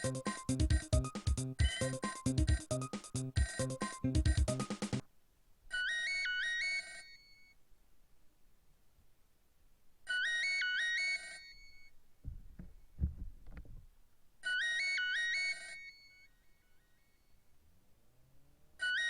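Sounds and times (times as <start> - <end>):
flute-like phone ringtone: 0.0 - 4.8, 5.7 - 7.6, 10.1 - 11.9, 14.4 - 17.3, 18.8 - 19.0.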